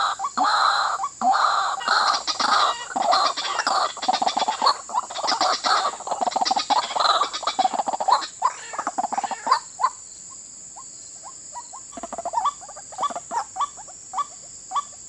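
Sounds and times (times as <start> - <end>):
bird calling harsh notes: 0.0 - 10.0.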